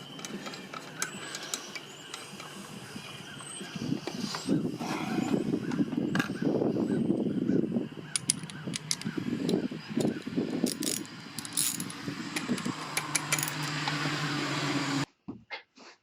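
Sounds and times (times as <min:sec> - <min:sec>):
metal parts clinking: 0:08.1 - 0:13.8
sharp clicks: 0:08.2 - 0:11.0.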